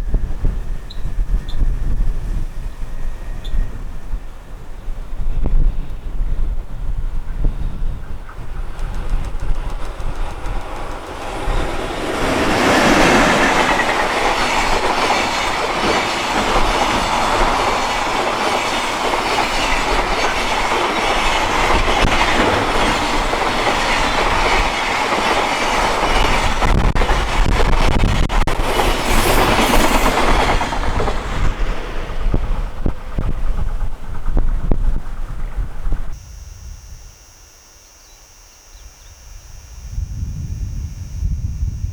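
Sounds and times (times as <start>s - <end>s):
wind rumble on microphone: 0.0s - 15.3s, 26.0s - 37.2s, 39.0s - 41.9s
freight train passing: 0.0s - 36.1s
train wheels clicking over rail joints: 8.3s - 35.5s.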